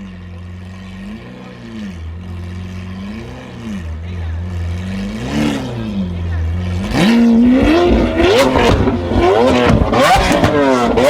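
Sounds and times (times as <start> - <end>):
sports car engine revving: 0.0 - 11.0
exhaust cracks and pops: 6.5 - 11.0.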